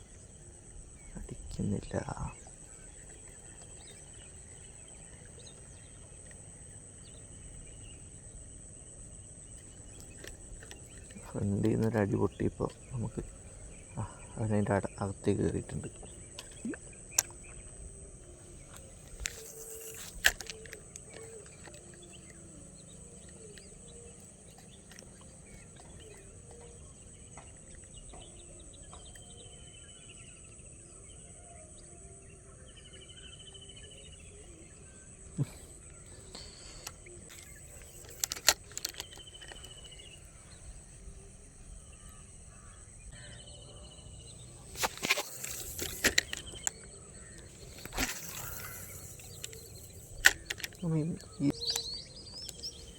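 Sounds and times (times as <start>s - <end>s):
bird calling: 0.0s - 31.9s, 32.8s - 52.9s
high insect drone: 0.0s - 52.9s
sharp clicks and knocks: 36.4s - 40.1s, 44.7s - 52.7s.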